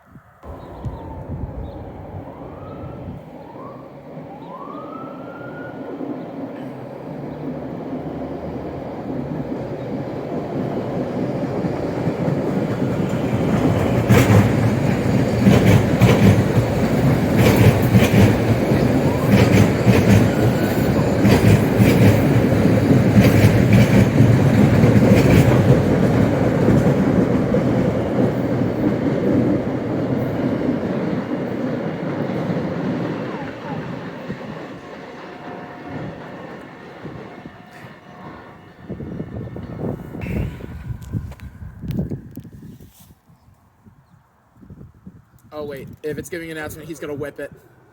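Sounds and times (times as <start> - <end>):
train rumbling past: 0.0 - 43.0, 46.1 - 47.9
train wheels clacking over rail joints: 9.1 - 38.1.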